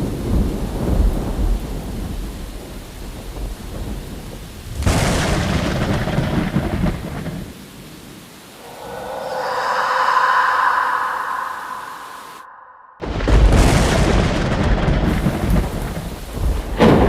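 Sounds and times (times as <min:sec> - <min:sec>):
sharp crack of thunder: 0:00.0 - 0:02.2, 0:03.2 - 0:07.5, 0:13.0 - 0:17.0
low thunder rumble: 0:00.0 - 0:07.5, 0:08.6 - 0:17.0.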